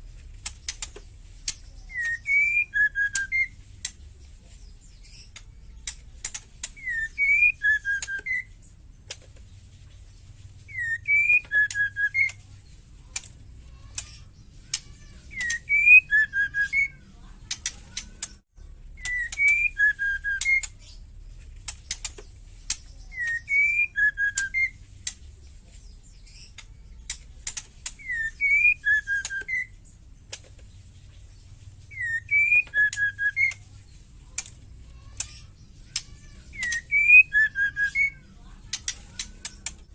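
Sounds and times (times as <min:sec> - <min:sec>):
sharp ticking clicks: 0:00.4 - 0:04.0, 0:05.2 - 0:09.2, 0:11.3 - 0:18.4, 0:21.6 - 0:25.4, 0:26.3 - 0:30.5, 0:32.6 - 0:39.9
bird whistled phrase: 0:01.8 - 0:03.6, 0:06.8 - 0:08.6, 0:10.7 - 0:12.4, 0:14.7 - 0:17.1, 0:19.0 - 0:20.8, 0:23.1 - 0:24.8, 0:28.0 - 0:29.8, 0:31.9 - 0:33.6, 0:35.3 - 0:38.3.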